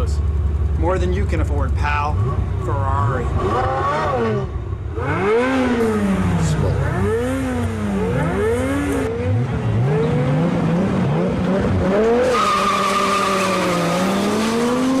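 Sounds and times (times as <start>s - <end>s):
sports car engines revving: 0.0s - 15.0s.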